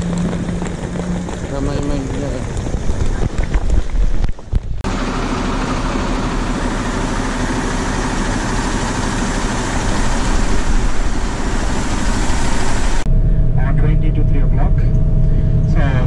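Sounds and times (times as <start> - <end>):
bus engine idling: 4.7 - 13.1.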